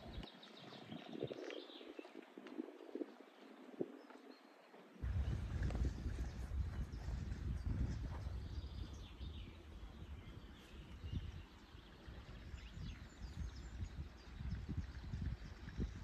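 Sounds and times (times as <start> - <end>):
low outdoor rumble: 5.0 - 11.4.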